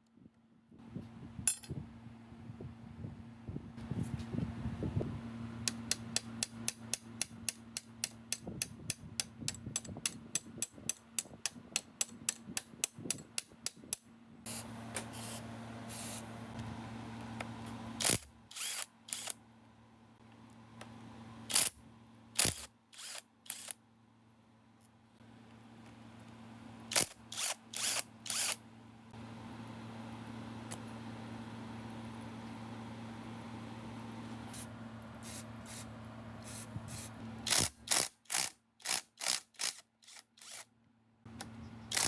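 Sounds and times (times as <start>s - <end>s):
ratchet wrench clicking: 5.7s - 14.0s, 18.0s - 19.4s, 21.5s - 21.8s, 22.4s - 23.8s, 26.9s - 28.6s, 36.4s - 40.7s.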